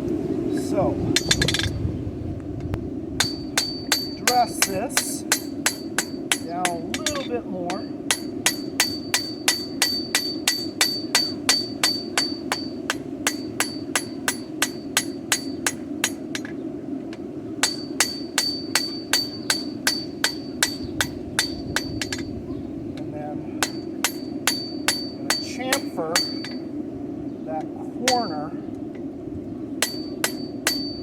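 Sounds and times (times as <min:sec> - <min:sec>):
hammer striking steel on anvil: 0:01.2 - 0:01.8, 0:03.2 - 0:16.5, 0:17.6 - 0:22.4, 0:23.6 - 0:26.7, 0:28.1 - 0:28.4, 0:29.8 - 0:31.0.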